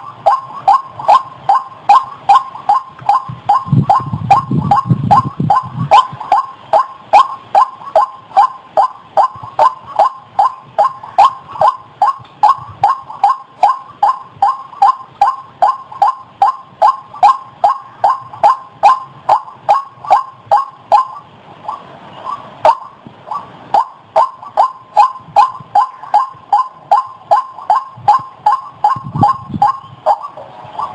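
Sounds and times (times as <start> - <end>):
waterhen calling harsh notes: 0.0 - 30.9.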